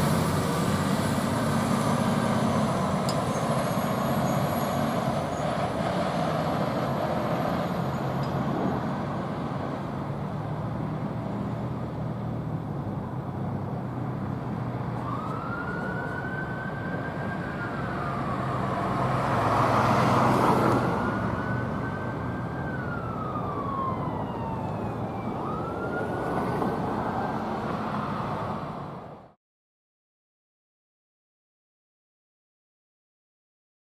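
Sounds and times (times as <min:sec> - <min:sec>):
fire truck engine running: 0:00.0 - 0:19.5, 0:20.2 - 0:28.5
siren wailing: 0:14.9 - 0:28.4.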